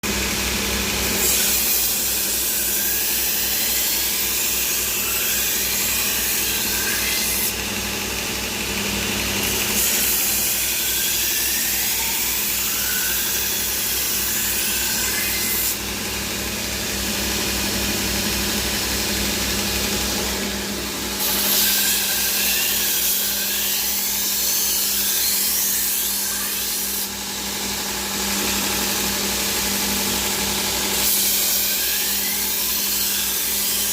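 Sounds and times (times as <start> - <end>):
knife grinding on sharpening wheel: 1.0 - 18.8, 19.8 - 33.9.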